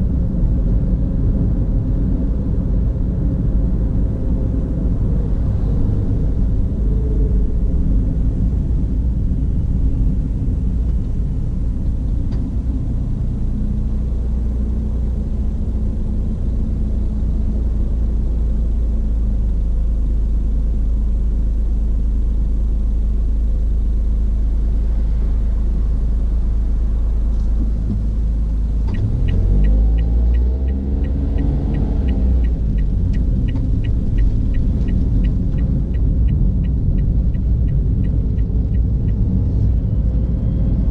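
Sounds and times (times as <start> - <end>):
car engine and road noise: 0.0 - 40.9
regular ticking: 28.8 - 39.2.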